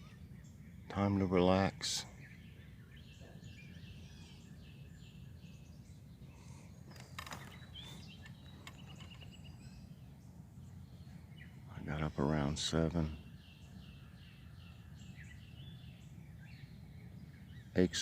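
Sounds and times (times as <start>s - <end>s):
songbirds singing: 0.0s - 18.0s
brief rustle: 6.9s - 9.3s.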